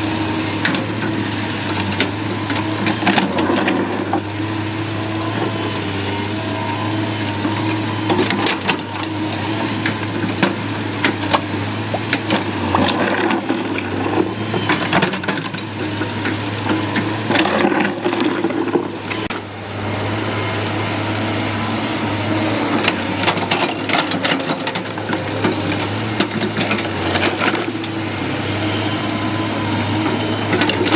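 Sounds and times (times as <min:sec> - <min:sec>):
excavator diesel engine running: 0:00.0 - 0:30.9
metal clanks and knocks: 0:22.8 - 0:27.9.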